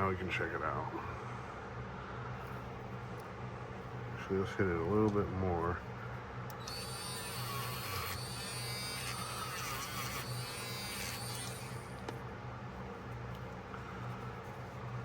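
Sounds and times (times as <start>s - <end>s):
rotary tool wire brush whining: 6.6s - 12.0s
wire brush rasping on metal: 6.7s - 11.9s.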